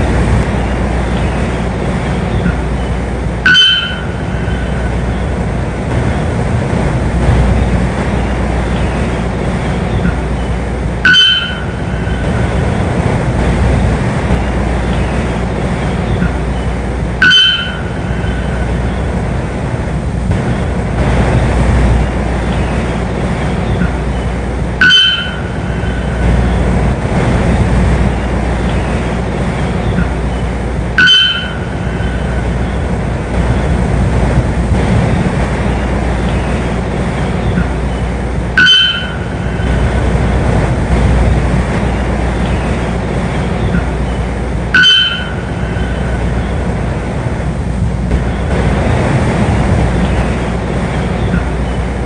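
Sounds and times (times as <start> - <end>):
steady rumbling background noise: 0.0 - 52.0
sharp ringing bird call: 2.3 - 5.4, 9.9 - 12.3, 16.0 - 19.2, 23.7 - 26.2, 29.9 - 33.0, 37.4 - 39.8, 43.7 - 46.6.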